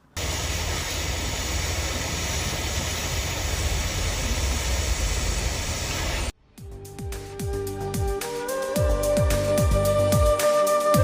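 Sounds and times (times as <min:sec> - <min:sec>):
rushing hiss of blowing air: 0:00.2 - 0:06.3.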